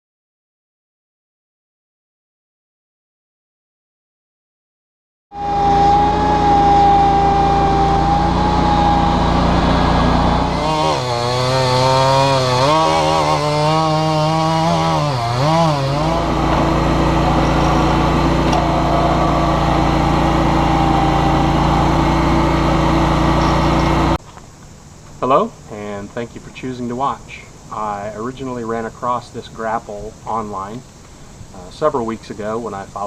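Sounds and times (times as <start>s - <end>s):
garden tractor engine running: 5.4s - 27.9s.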